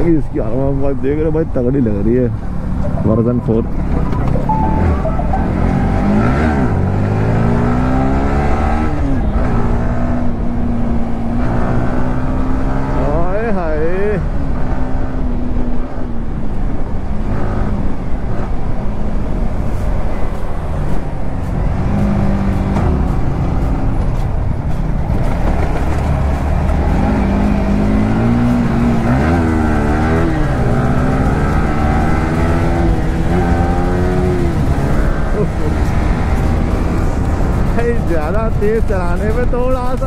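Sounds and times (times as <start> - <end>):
motorcycle engine revving: 25.2 - 37.9.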